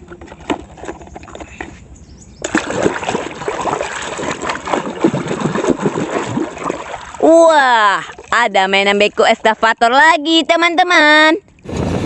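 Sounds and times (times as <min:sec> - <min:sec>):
water splashing and sloshing: 0:00.0 - 0:01.8, 0:02.4 - 0:10.0.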